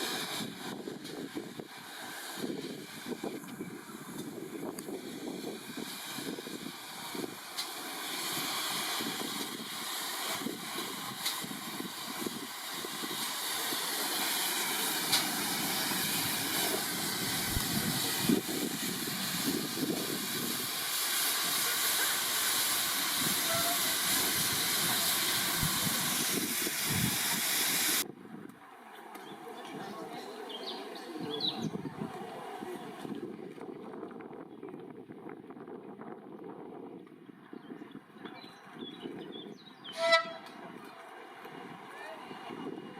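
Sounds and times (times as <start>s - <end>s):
locomotive hissing: 0.0s - 28.0s, 39.9s - 42.9s.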